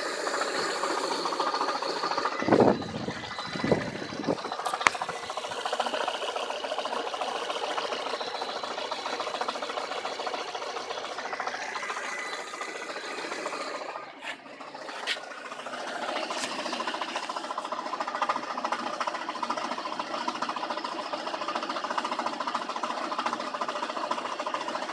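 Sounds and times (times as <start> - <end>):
gearbox knocking rattle: 0.1 - 24.9.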